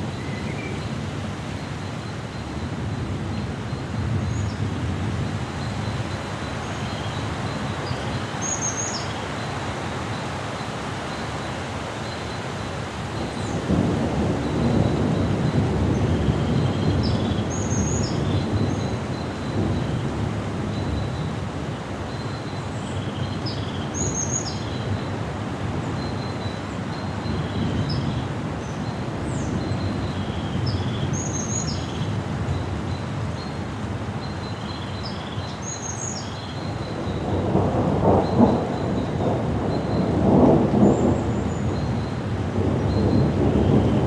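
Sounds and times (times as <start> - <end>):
wind: 0.0 - 44.0
thunder rumbling: 13.2 - 20.5, 36.8 - 44.0.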